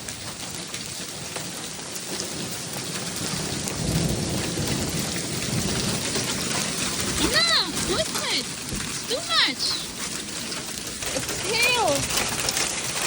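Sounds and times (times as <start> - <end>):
hailstones ticking: 0.0 - 13.0
heavy rain hissing: 2.6 - 13.0.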